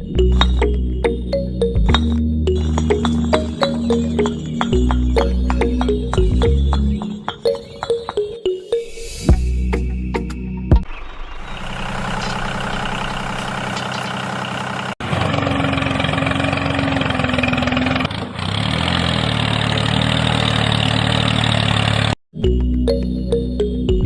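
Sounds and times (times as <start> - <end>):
motor running: 11.0 - 18.1.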